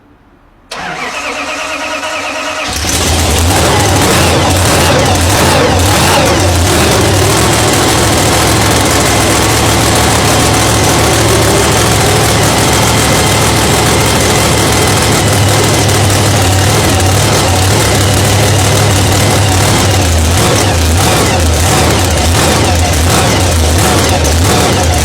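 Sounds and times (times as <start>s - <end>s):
car engine idling: 2.0s - 25.0s.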